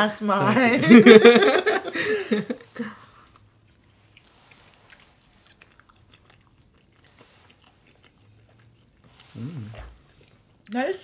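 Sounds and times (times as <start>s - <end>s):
person laughing: 0.4s - 3.0s
people chewing pizza: 1.0s - 11.0s.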